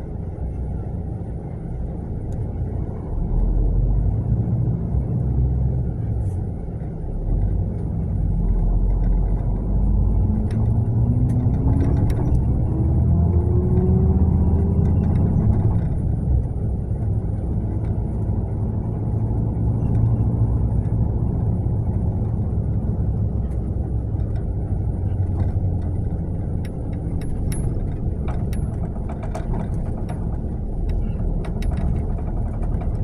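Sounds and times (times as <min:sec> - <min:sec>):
bus engine rumbling: 0:00.0 - 0:33.0
clicks and rattles: 0:25.1 - 0:33.0.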